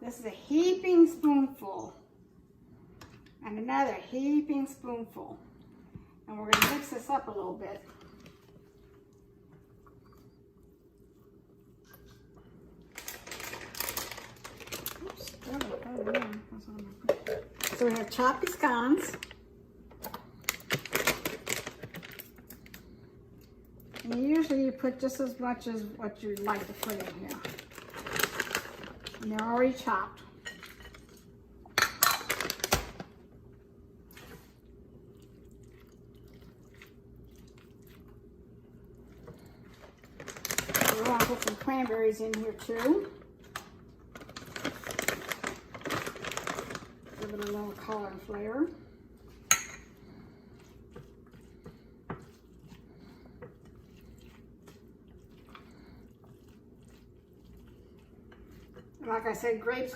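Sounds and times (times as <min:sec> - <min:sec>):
soft wet squishes: 0:07.8 - 0:13.0, 0:34.0 - 0:41.1, 0:50.0 - 0:59.8.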